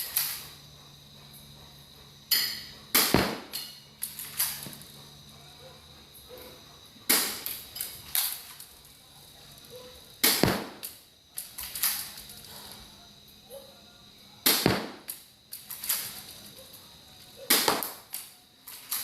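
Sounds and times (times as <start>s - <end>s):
airsoft pistol firing snaps: 2.9s - 3.7s, 7.1s - 7.6s, 10.2s - 11.0s, 14.4s - 15.2s, 17.5s - 18.2s.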